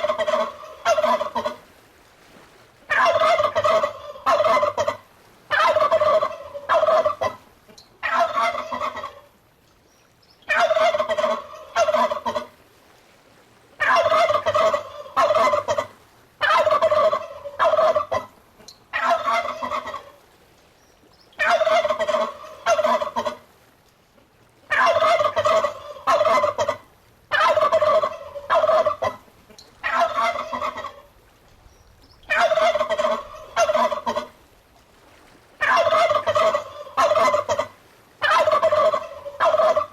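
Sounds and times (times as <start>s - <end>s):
turkey gobbling: 0.0s - 1.6s, 2.9s - 7.4s, 8.0s - 9.3s, 10.5s - 12.5s, 13.8s - 20.2s, 21.4s - 23.4s, 24.7s - 31.1s, 32.3s - 34.3s, 35.6s - 39.9s.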